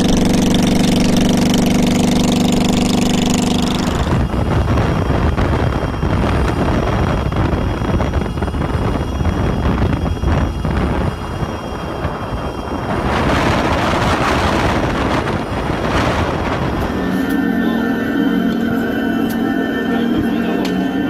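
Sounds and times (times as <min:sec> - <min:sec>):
motorcycle engine idling: 0:00.0 - 0:05.3
rough noisy rumble: 0:00.0 - 0:21.0.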